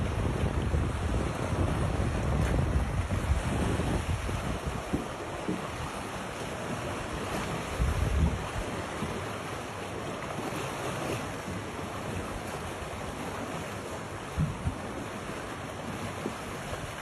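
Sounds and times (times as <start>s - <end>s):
rushing wind: 0.0s - 6.0s, 7.1s - 8.8s
wind buffeting microphone: 0.0s - 9.2s, 14.3s - 15.0s.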